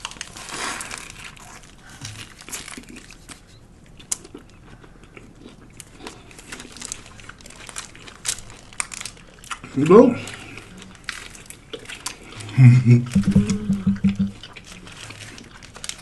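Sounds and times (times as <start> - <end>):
biting and chewing: 0.0 - 12.6, 14.0 - 16.0
paper wrapper crinkling: 6.6 - 9.4.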